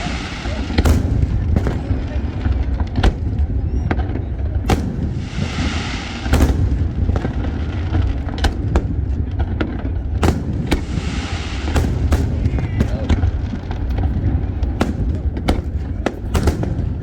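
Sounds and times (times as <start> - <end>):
firework crackling hiss: 0.0 - 3.4, 4.6 - 17.0
low rumble: 0.0 - 17.0
firework shells bursting: 4.7 - 17.0.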